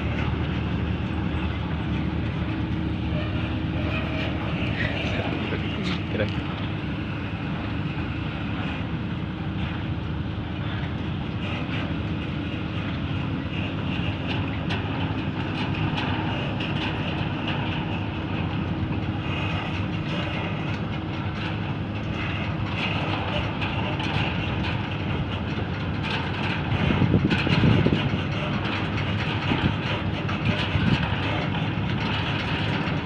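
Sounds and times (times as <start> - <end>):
diesel engine running: 0.0 - 33.0
steel tracks rattling: 0.0 - 33.0
metal clanks: 12.7 - 33.0.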